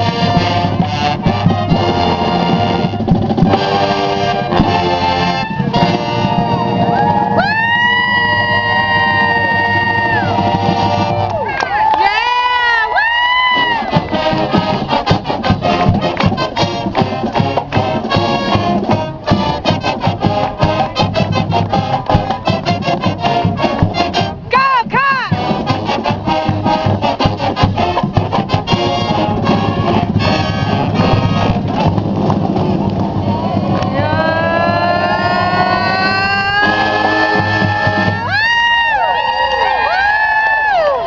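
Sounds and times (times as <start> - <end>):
fast drumming: 0.0 - 11.3, 13.3 - 39.0
brass and woodwinds: 0.0 - 41.0
swooping pitch bends: 33.3 - 38.3.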